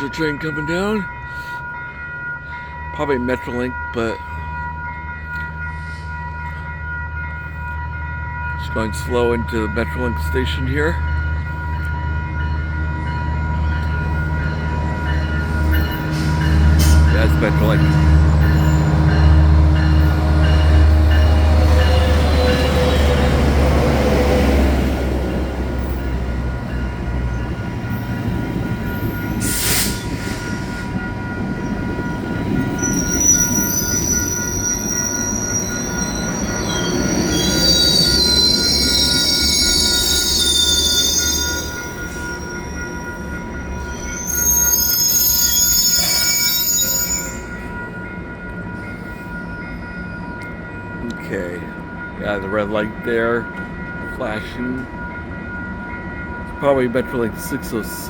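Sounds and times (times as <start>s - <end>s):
diesel locomotive engine droning: 0.0s - 58.0s
train wheel and brake squeal: 28.8s - 31.1s, 32.7s - 47.6s.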